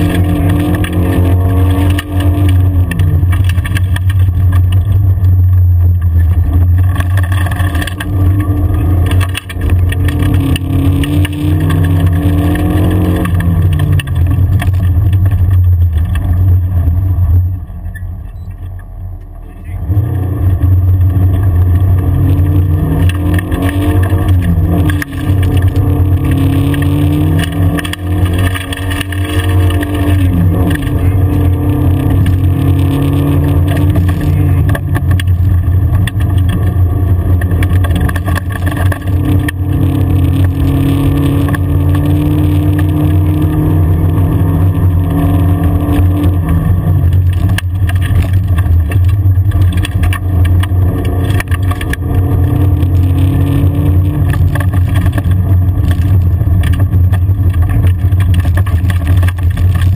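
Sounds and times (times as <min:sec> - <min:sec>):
rally car engine revving: 0:00.0 - 0:59.9
tyre and road drone: 0:00.0 - 0:59.9.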